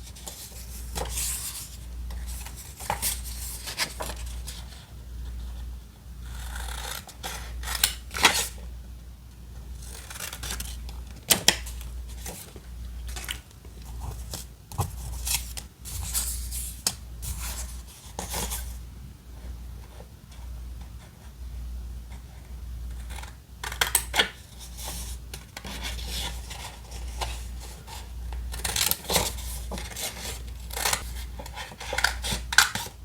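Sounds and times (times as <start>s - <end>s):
scissors cutting paper: 6.3s - 8.6s, 9.8s - 11.5s, 28.5s - 32.9s.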